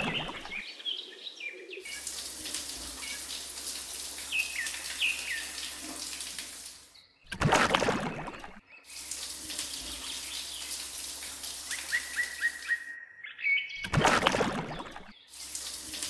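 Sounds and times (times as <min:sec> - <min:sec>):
running water hiss: 0:00.0 - 0:00.6, 0:01.9 - 0:07.0, 0:08.9 - 0:12.8, 0:15.2 - 0:16.0
birds chirping: 0:00.0 - 0:16.0.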